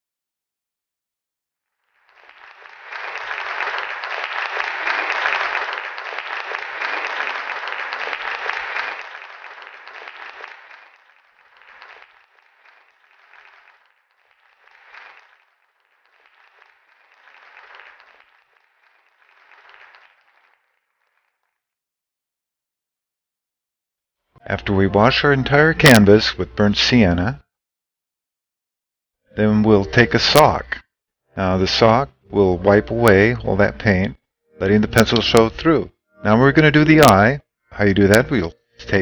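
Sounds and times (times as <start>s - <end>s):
audience applause: 1.9s - 21.5s.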